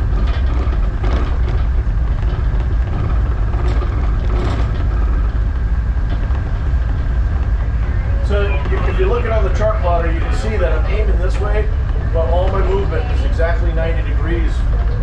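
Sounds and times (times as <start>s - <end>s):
tugboat diesel engines rumbling: 0.0s - 15.0s.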